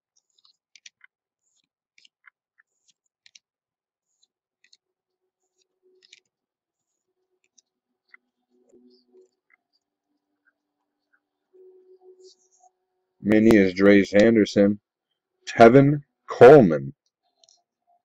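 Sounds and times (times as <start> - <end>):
trading cards clicking and rustling: 0.1 - 4.8, 5.4 - 8.2.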